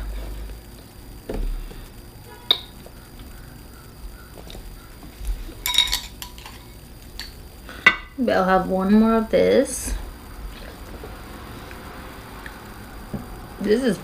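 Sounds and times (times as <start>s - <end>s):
tableware clinking: 5.6s - 8.1s.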